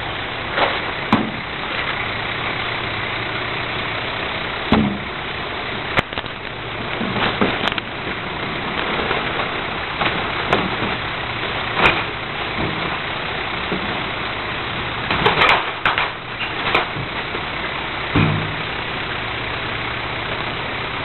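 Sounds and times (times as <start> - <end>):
garbage truck idling: 0.0 - 21.0
metal clanks and knocks: 0.5 - 2.0, 4.7 - 5.2, 6.0 - 7.9, 8.7 - 14.1, 15.0 - 17.3, 18.1 - 18.7.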